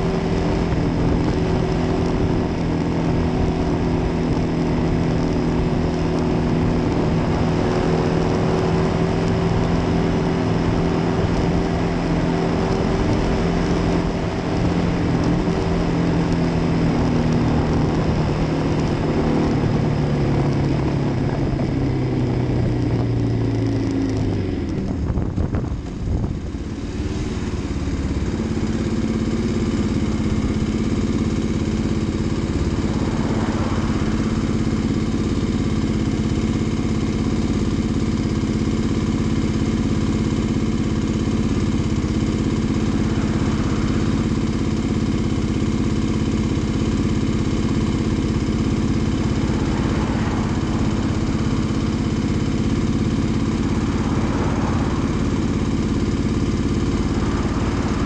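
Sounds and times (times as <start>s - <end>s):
motorcycle engine cruising: 0.0s - 58.0s
wind rush: 32.2s - 35.8s, 49.4s - 55.2s.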